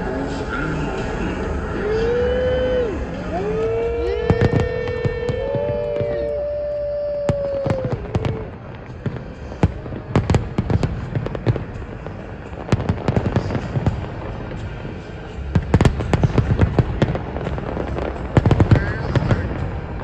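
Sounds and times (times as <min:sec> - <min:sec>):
fireworks bangs and crackles: 0:00.0 - 0:20.0
firework whistle falling in pitch: 0:01.9 - 0:08.5.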